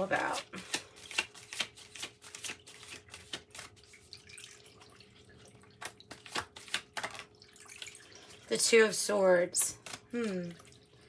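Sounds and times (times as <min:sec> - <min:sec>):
cards clicking and tapping: 0:00.3 - 0:03.7, 0:05.8 - 0:07.3.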